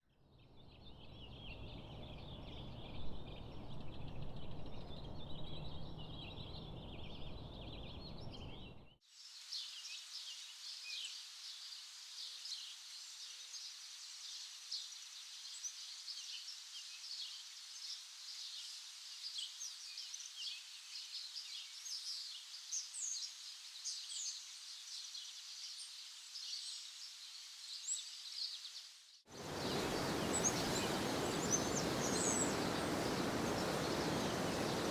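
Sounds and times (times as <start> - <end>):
songbirds chirping and singing: 1.2 - 8.9, 29.4 - 34.9.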